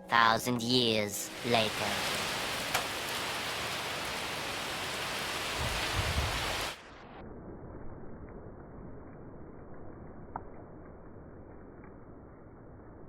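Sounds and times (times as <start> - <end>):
heavy rain and wind: 0.1 - 7.0
muffled hiss: 1.3 - 6.9
wind rumble on microphone: 4.5 - 6.8.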